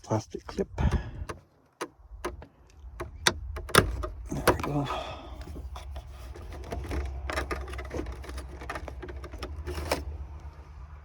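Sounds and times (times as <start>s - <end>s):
plastic trim clicks and knocks: 0.9s - 4.8s.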